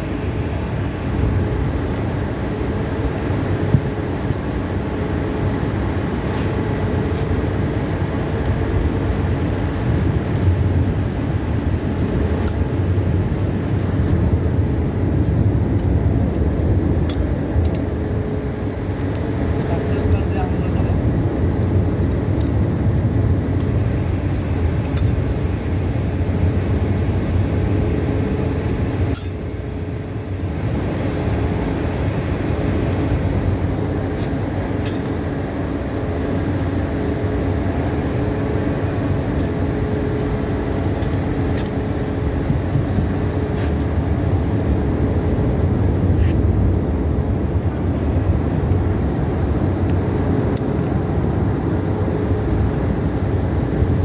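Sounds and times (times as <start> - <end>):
low mechanical hum: 0.0 - 54.0
small metallic clinks: 11.7 - 12.7, 18.6 - 25.3, 29.1 - 29.5, 34.8 - 35.2.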